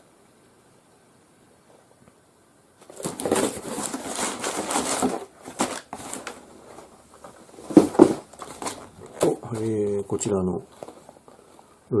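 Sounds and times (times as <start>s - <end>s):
packaging rustling: 2.8s - 11.8s.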